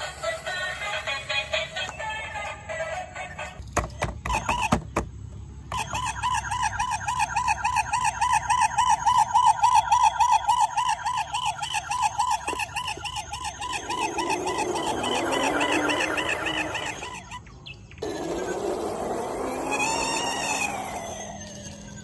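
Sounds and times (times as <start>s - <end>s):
toy electronic siren warbling: 0.0s - 3.4s, 5.7s - 22.0s.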